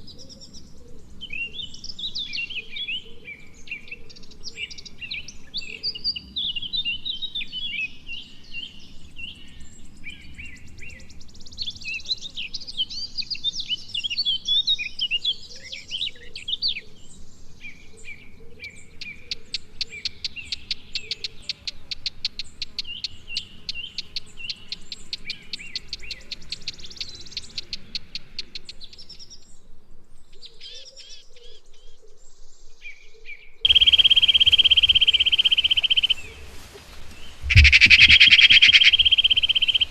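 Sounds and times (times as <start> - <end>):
songbirds chirping and whistling: 0.0 - 39.9
fast bird trill: 33.7 - 36.4, 37.4 - 39.9.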